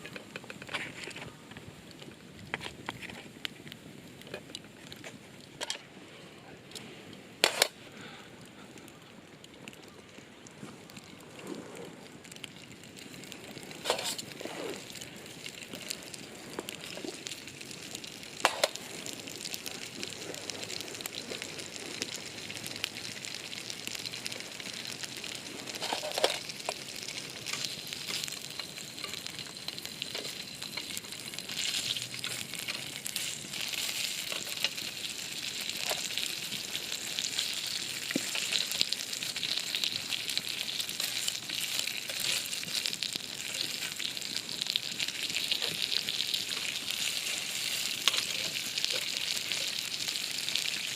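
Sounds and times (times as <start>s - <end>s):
food sizzling: 7.4s - 7.8s, 10.6s - 50.9s.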